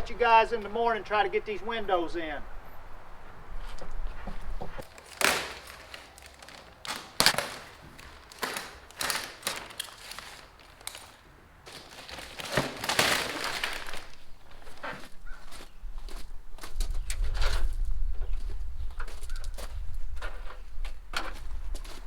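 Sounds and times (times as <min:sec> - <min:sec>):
rustling scrape: 0:03.6 - 0:15.7.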